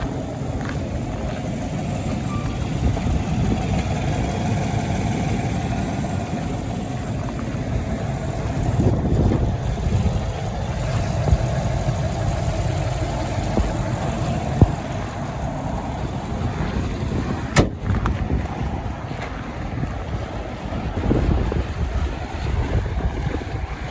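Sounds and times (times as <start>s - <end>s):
pickup truck engine idling: 0.0s - 23.9s.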